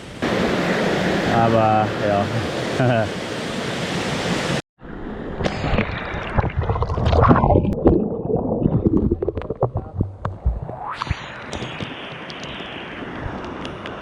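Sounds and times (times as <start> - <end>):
water gurgling and splashing: 5.6 - 11.7.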